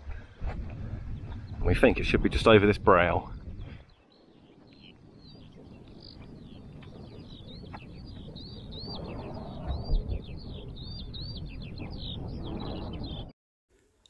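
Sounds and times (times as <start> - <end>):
wind rumbling on microphone: 0.0 - 13.3
high-pitched birdsong: 3.3 - 13.3.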